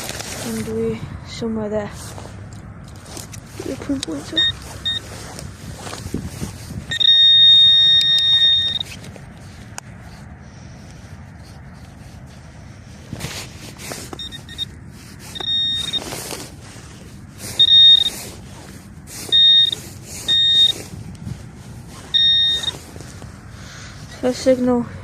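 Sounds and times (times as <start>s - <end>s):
rustling and scraping: 0.0s - 1.1s, 1.7s - 24.8s
wind rumble on microphone: 0.0s - 25.0s
pinpointer high beeps: 4.3s - 5.1s, 6.9s - 8.9s, 14.2s - 14.7s, 15.3s - 16.1s, 17.5s - 18.2s, 19.2s - 20.8s, 22.1s - 22.8s.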